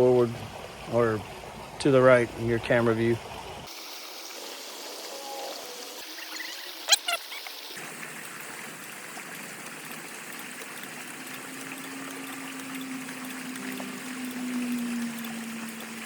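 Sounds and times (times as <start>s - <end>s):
water trickling: 0.0s - 16.0s.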